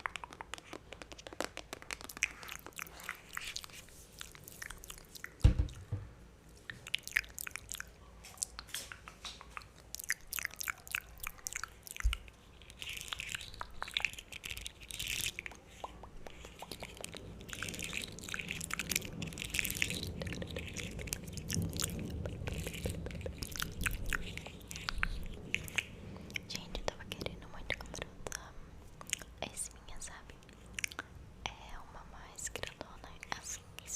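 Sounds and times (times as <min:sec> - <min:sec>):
lip smacks: 0:00.0 - 0:05.9, 0:06.5 - 0:29.4, 0:30.4 - 0:31.2
low thump: 0:05.4 - 0:06.2
tongue clicks: 0:06.7 - 0:18.9.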